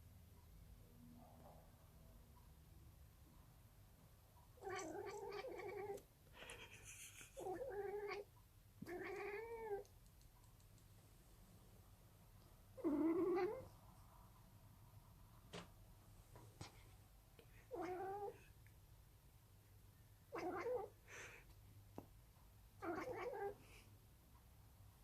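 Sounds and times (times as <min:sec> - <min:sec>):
cat yowling: 0:22.8 - 0:23.5.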